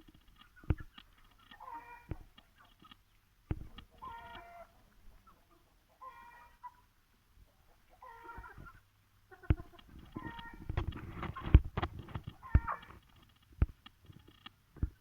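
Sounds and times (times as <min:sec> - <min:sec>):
chickens calling: 0:00.0 - 0:13.4.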